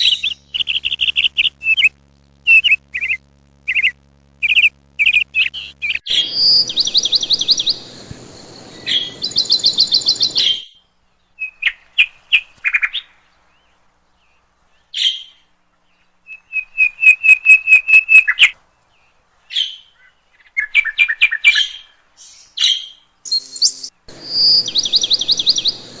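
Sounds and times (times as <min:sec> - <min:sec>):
budgerigars chirping: 0:02.5 - 0:10.6, 0:22.6 - 0:26.0.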